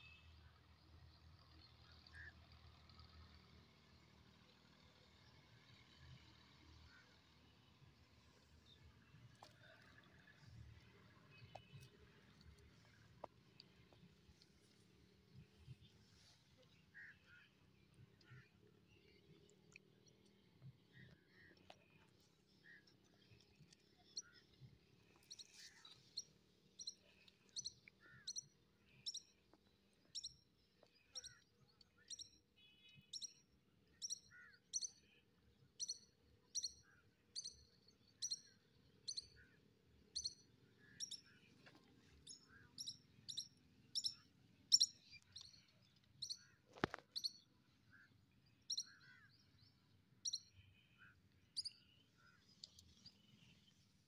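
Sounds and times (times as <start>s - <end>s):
bird chirping: 42.3s - 47.4s.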